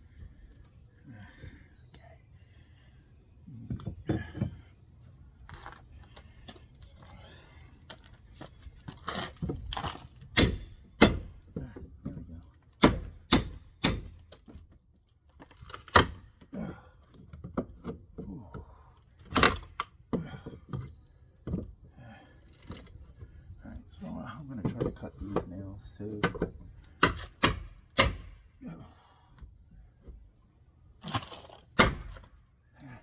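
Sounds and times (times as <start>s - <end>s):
hand tools knocking on nails and wood: 9.4s - 14.6s, 24.6s - 25.5s, 26.2s - 28.4s.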